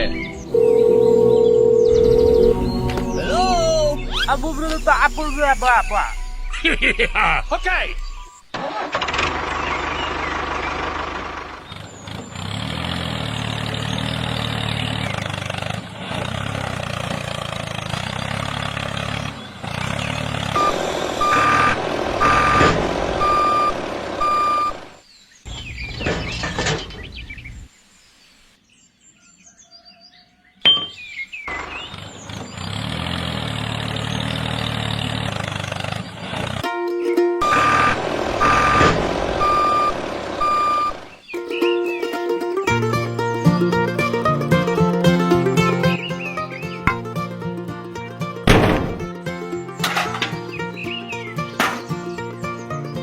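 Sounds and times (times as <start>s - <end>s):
reversing beeps: 0.5s - 2.8s, 20.6s - 24.8s, 37.4s - 41.0s
miniature vehicle engine running: 8.6s - 24.8s, 31.5s - 36.6s, 37.4s - 41.1s
sharp knock: 48.5s - 49.1s.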